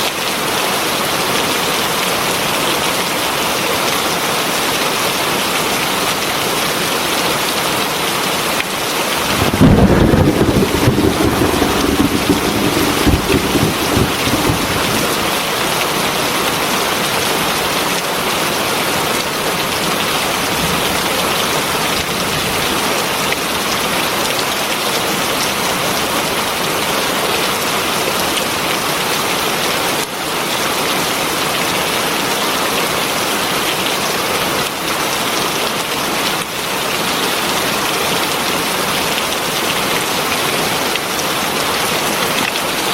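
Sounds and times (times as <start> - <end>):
heavy rain: 0.0 - 42.9
thunder rumbling: 9.2 - 16.3.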